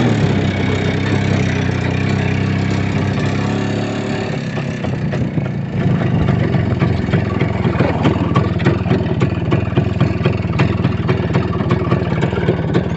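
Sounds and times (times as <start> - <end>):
vehicle engine running: 0.0 - 12.9
irregular clatter and knocks: 4.6 - 12.9.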